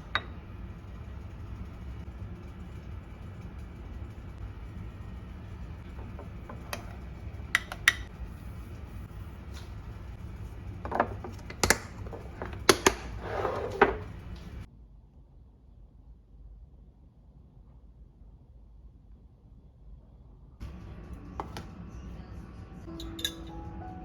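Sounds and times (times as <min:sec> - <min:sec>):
steady low hum: 0:00.0 - 0:24.0
utensils and dishes clinking: 0:10.8 - 0:14.6, 0:22.9 - 0:23.6.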